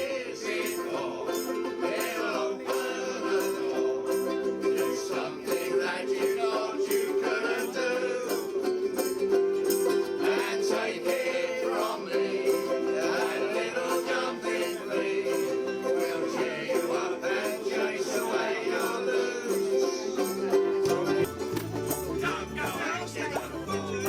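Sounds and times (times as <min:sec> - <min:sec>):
ukuleles strumming: 0:00.0 - 0:24.0
bass line: 0:20.6 - 0:24.0.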